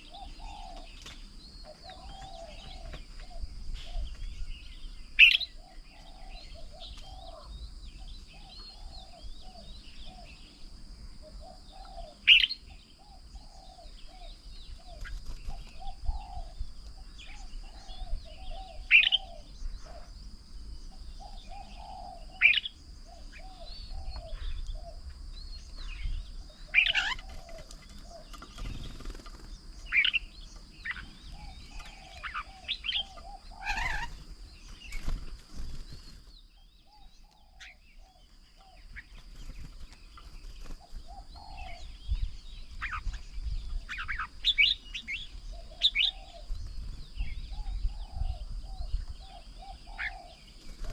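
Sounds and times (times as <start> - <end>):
low bird chirping: 0.0 - 50.9.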